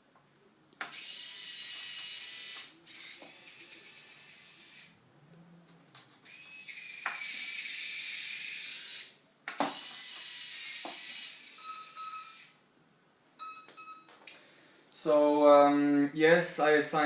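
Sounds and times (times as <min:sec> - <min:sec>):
servos whining: 0:00.8 - 0:12.6.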